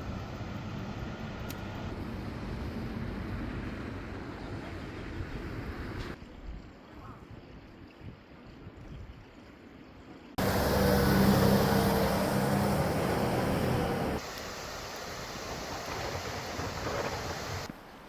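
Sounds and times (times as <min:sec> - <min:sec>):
car passing by: 0:10.4 - 0:17.7
steady rushing noise: 0:10.4 - 0:17.7.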